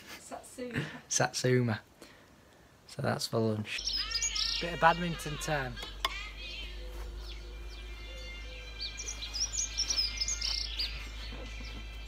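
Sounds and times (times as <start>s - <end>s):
songbirds chirping and singing: 3.7s - 12.0s.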